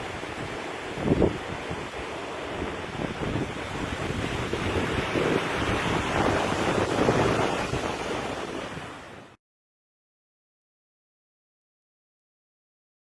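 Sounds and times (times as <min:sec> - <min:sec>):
wind buffeting microphone: 0:00.0 - 0:09.3
rushing water: 0:00.0 - 0:09.4.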